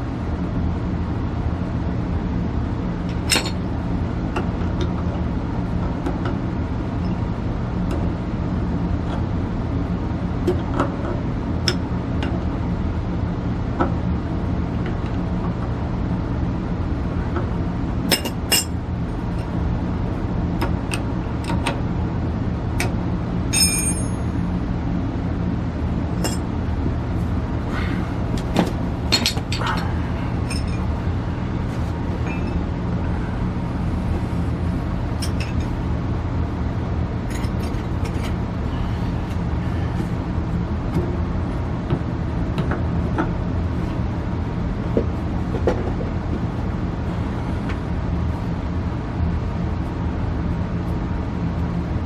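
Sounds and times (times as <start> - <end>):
low machine hum: 0.0 - 52.0
metal tools clinking: 23.5 - 24.2.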